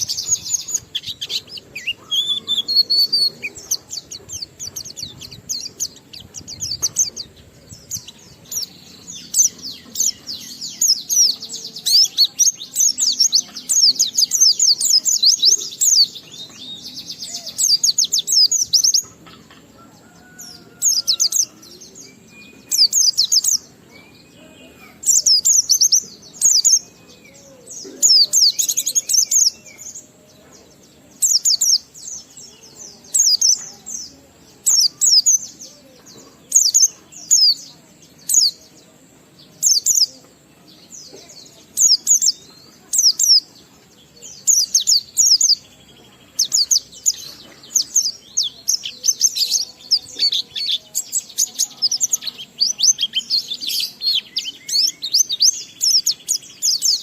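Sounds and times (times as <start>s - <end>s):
bird twittering song: 0.0s - 57.0s.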